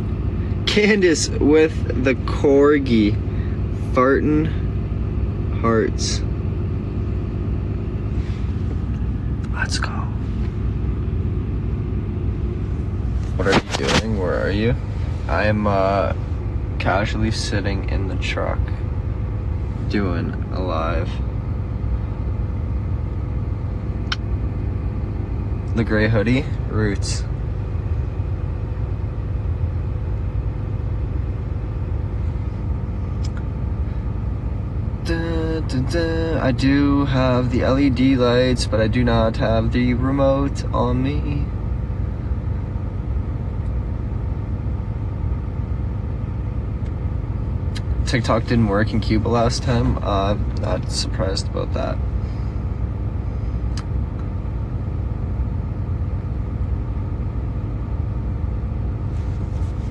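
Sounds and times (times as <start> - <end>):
truck cab rumble: 58.4 - 59.9.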